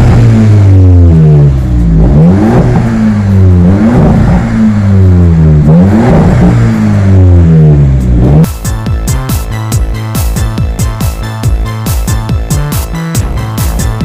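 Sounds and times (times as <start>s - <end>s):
car engine revving: 0.0s - 8.5s.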